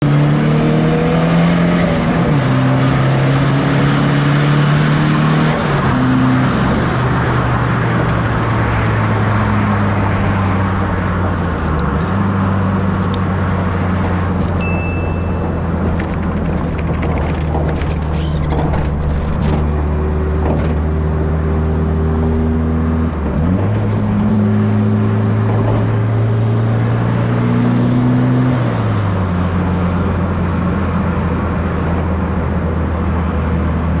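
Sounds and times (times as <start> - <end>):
fast clicking: 11.4 - 11.9, 12.8 - 13.2, 14.4 - 15.0, 15.9 - 19.8
turbocharged car engine running: 11.4 - 11.9, 12.8 - 13.2, 14.4 - 19.9.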